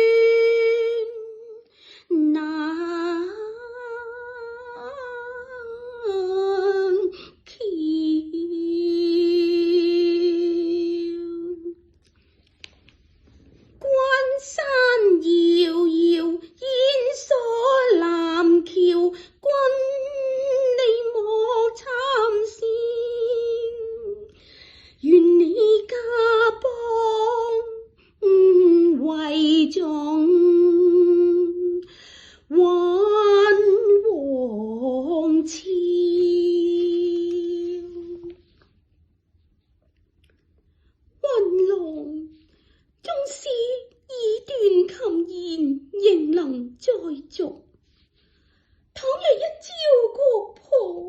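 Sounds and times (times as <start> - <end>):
woman singing opera unaccompanied: 0.0 - 11.8, 13.8 - 24.4, 25.0 - 31.9, 32.5 - 38.5, 41.2 - 42.4, 49.0 - 51.0.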